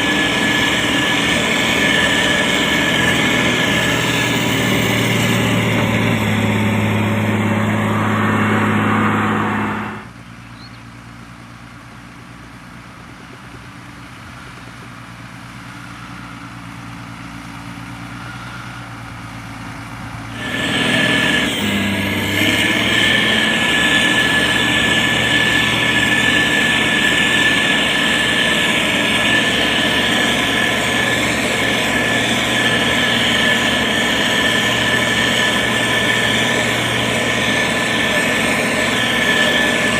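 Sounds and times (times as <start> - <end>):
steady high whine: 0.0 - 10.3, 15.8 - 39.9
heavy diesel engine running: 0.0 - 39.9.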